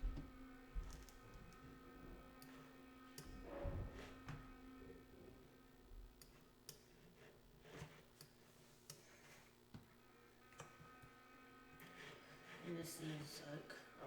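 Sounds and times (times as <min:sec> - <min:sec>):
low steady hum: 0:00.0 - 0:14.0
faint irregular clicks: 0:06.1 - 0:11.2.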